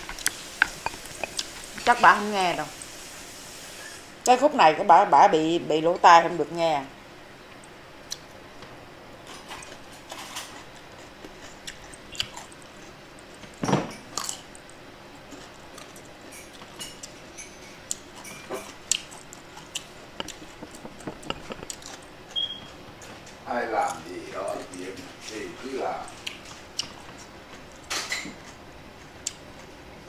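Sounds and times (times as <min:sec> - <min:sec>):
chewing and mouth smacks: 0:08.0 - 0:08.3, 0:09.5 - 0:24.8, 0:26.1 - 0:29.5.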